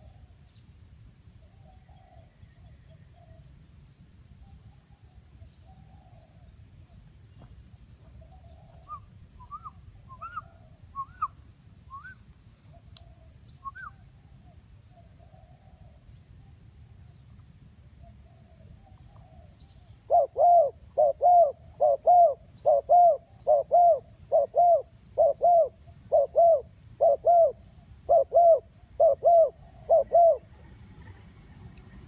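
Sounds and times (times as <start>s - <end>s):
dove cooing: 8.0s - 11.3s, 18.0s - 30.8s.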